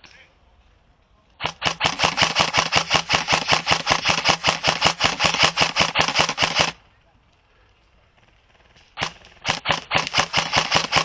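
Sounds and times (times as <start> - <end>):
airsoft gun firing full-auto: 1.4 - 6.8, 9.0 - 11.0.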